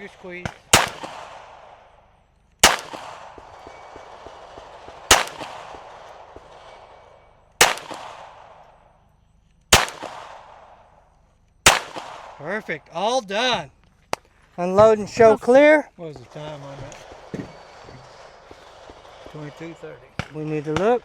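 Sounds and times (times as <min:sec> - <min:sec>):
pistol shots with echo: 0:00.0 - 0:08.9, 0:09.7 - 0:11.0, 0:11.6 - 0:12.7.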